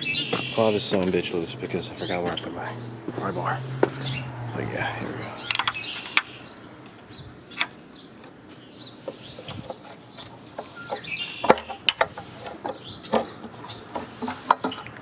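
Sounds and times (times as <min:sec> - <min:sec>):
wrench knocking and scraping metal: 0:05.4 - 0:06.4, 0:07.4 - 0:08.4, 0:09.0 - 0:15.0.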